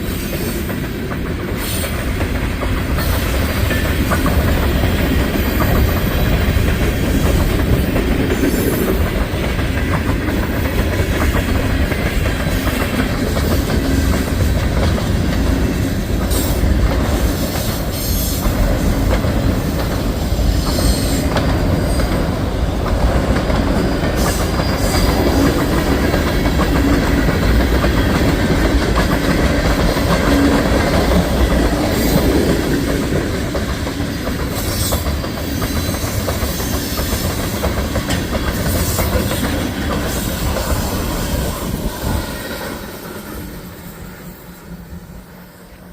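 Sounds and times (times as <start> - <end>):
freight train wheels rumbling: 0.0 - 45.9
wheels clacking over rail joints: 0.6 - 43.3.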